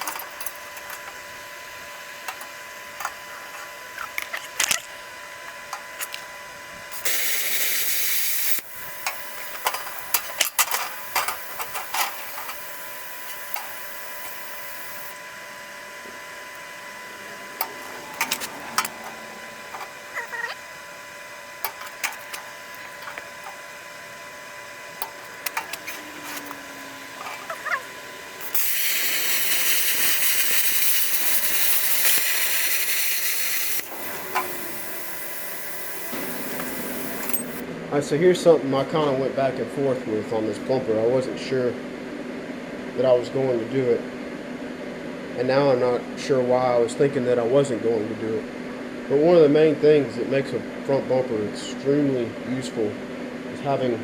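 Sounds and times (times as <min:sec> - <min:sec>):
steady hissing: 0:06.9 - 0:15.2, 0:16.4 - 0:37.6.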